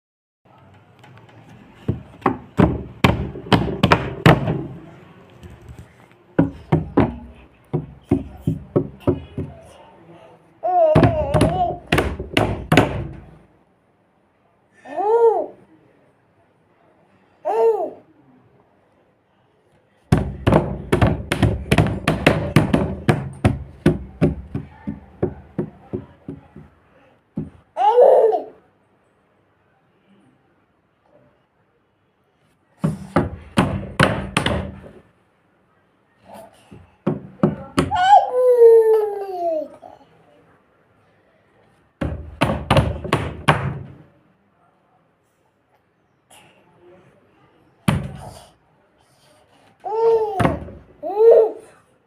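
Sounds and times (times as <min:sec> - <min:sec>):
baby banging on hard object: 0:01.8 - 0:04.8, 0:06.4 - 0:09.6, 0:10.8 - 0:13.4, 0:20.1 - 0:26.6, 0:32.8 - 0:35.0, 0:36.7 - 0:38.2, 0:42.0 - 0:44.0, 0:50.0 - 0:50.8.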